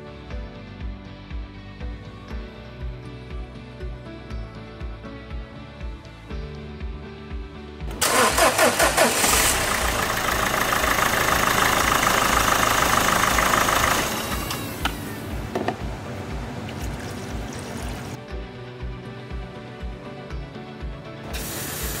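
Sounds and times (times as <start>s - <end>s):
diesel engine cranking and starting: 7.9s - 15.5s
diesel engine running: 7.9s - 18.2s.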